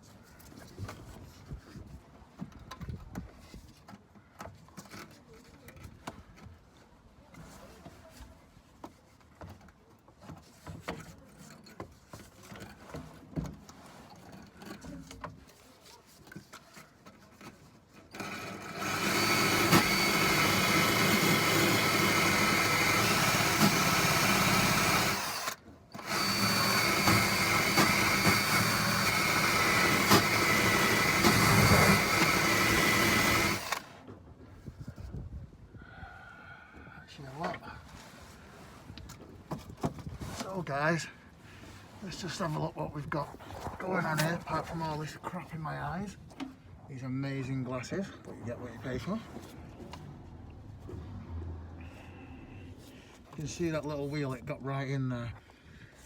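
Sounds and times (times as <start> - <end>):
power drill wire wheel on rusty steel: 18.0 - 34.0.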